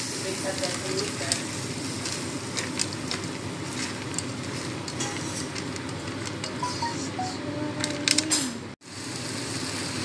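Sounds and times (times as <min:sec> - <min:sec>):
vegetables sizzling in a frying pan: 0:00.0 - 0:06.5, 0:08.8 - 0:10.0.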